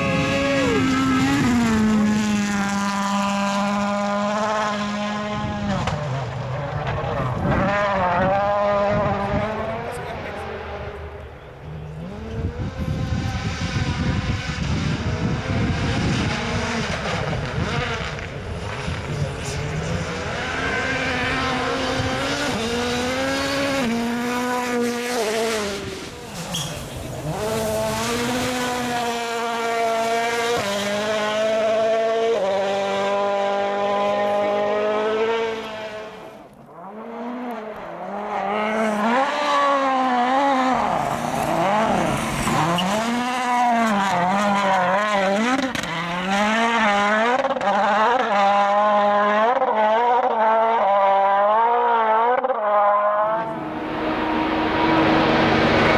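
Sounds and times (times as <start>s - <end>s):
rally car engine at full throttle: 0.0s - 55.9s.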